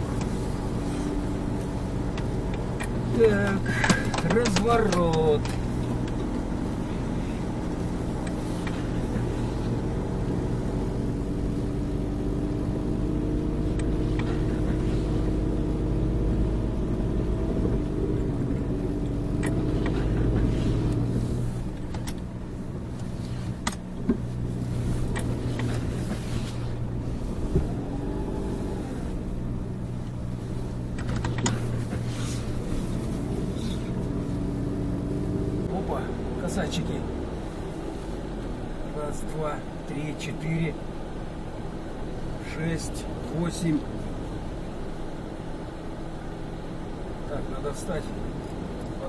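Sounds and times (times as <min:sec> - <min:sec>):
snowmobile engine running: 0:24.1 - 0:37.1.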